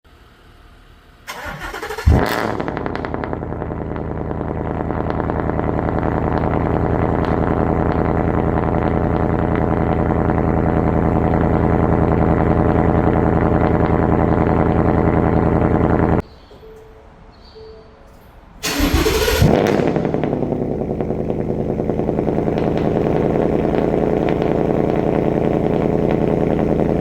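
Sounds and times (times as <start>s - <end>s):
engine idling: 0.1s - 16.7s, 18.6s - 27.0s
starter motor cranking: 18.6s - 21.3s.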